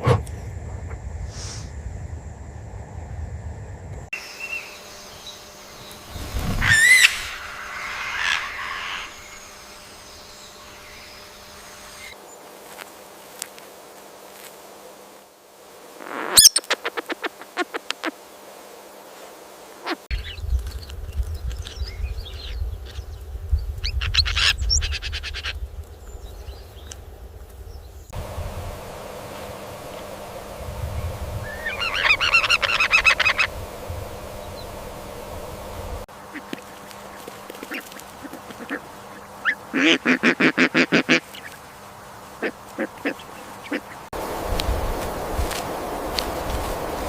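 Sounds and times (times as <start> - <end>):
steady low rumble: 0.0 - 4.1, 20.1 - 36.4, 44.1 - 47.0
birds chirping and trilling: 4.2 - 12.2, 19.8 - 27.0, 27.6 - 44.1
high-pitched bird call: 6.6 - 11.2, 31.4 - 33.5.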